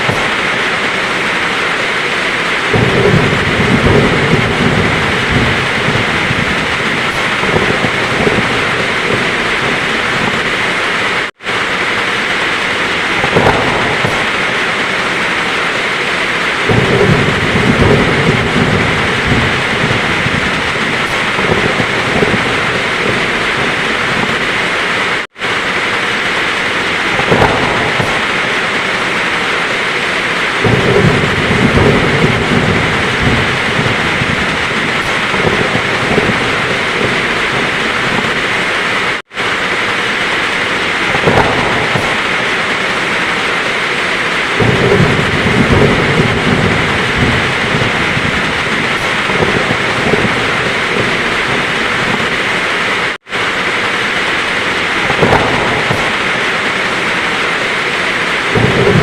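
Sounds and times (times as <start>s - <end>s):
heavy rain pouring: 0.0s - 59.0s
thunder rumbling: 0.0s - 59.0s.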